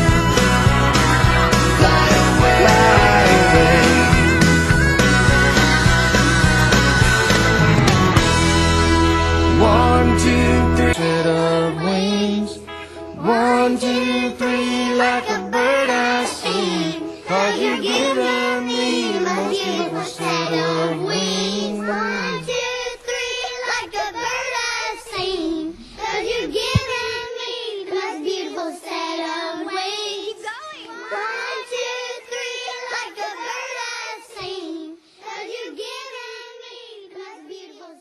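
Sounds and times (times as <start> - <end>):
backing music: 0.0 - 27.3
child singing: 1.8 - 4.3, 9.6 - 12.6, 13.2 - 38.0.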